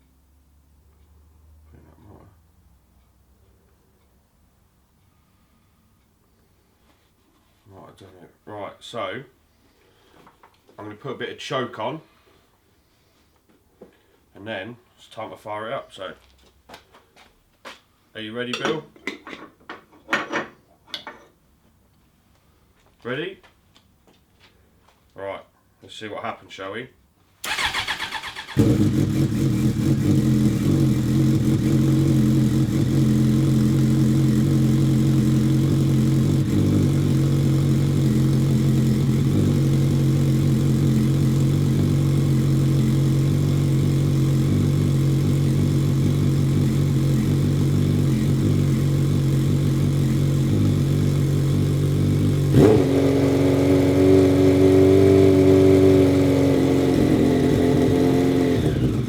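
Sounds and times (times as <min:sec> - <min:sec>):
motorcycle engine cranking: 0:27.4 - 0:31.7
motorcycle engine idling: 0:27.5 - 0:54.6.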